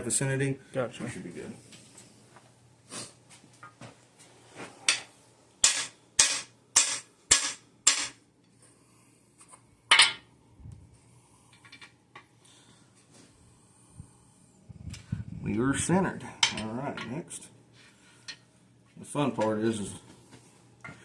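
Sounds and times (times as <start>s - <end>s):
hammer striking metal tool: 5.6s - 8.2s.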